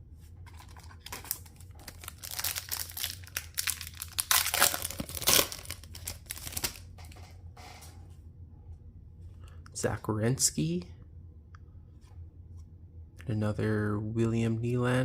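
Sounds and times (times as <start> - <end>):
wrapper tearing and crinkling: 0.5 - 6.9.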